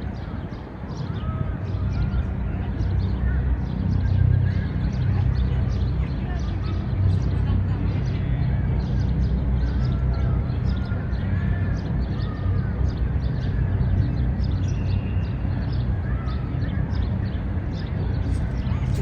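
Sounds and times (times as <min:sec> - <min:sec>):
distant traffic rumble: 0:13.8 - 0:19.0.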